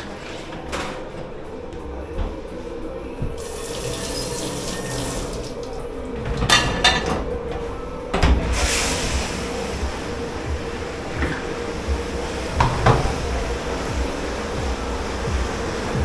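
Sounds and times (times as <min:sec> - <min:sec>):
tap water running into sink: 0:03.4 - 0:07.2.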